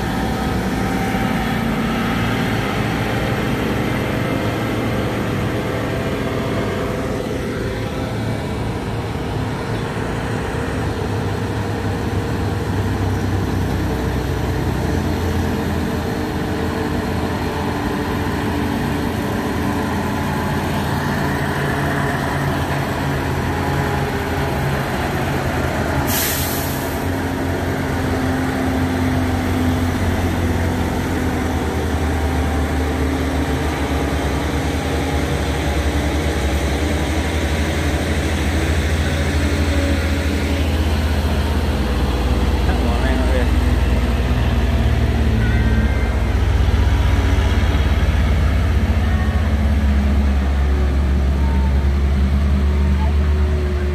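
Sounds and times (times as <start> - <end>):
diesel truck engine running: 0.0 - 53.9.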